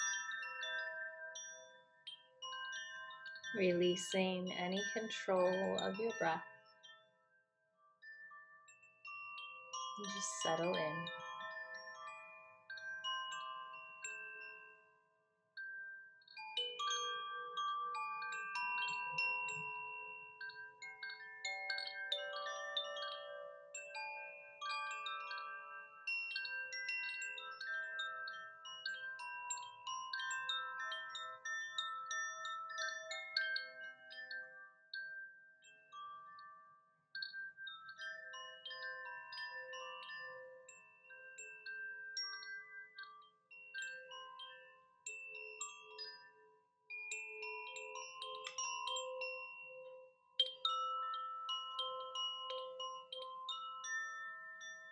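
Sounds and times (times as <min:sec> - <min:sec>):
metal chimes ringing: 0:02.7 - 0:06.4, 0:09.7 - 0:12.0.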